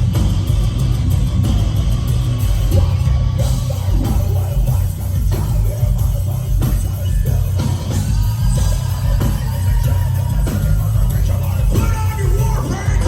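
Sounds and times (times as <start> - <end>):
heavy metal band playing: 0.0 - 13.0
shouted vocals: 8.2 - 13.0.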